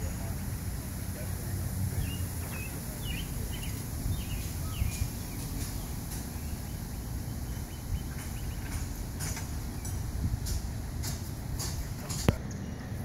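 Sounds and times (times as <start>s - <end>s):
small birds chirping: 1.9s - 10.6s.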